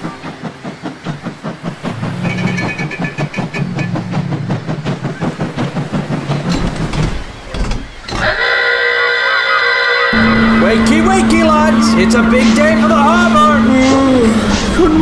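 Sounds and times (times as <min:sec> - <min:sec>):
train rhythmic clatter: 0:00.0 - 0:15.0
brief high tone: 0:10.1 - 0:14.1
steady low hum: 0:10.2 - 0:15.0.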